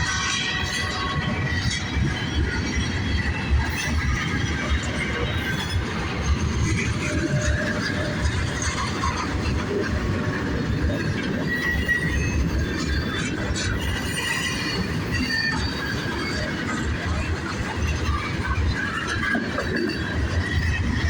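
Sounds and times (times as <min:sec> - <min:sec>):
wheels rumbling on rail: 0:00.0 - 0:21.0
high wheel squeals: 0:10.9 - 0:17.1.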